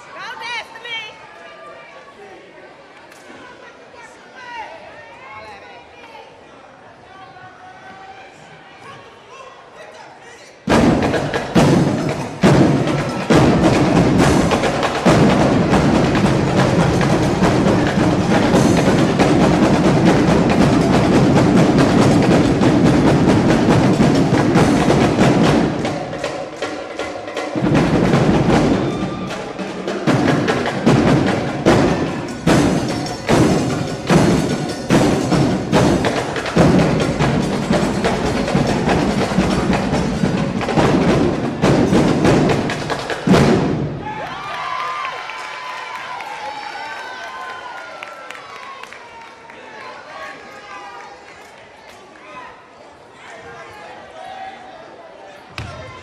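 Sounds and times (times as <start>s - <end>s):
drum line percussion cadence: 10.7s - 45.4s.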